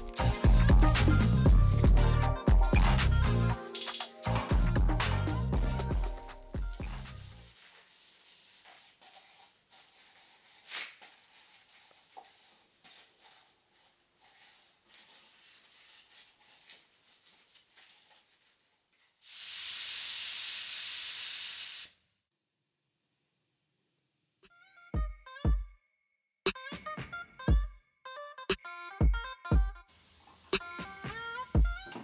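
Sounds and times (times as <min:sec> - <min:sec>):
spray gun hissing: 0:00.0 - 0:09.4, 0:19.2 - 0:22.0, 0:29.9 - 0:32.0.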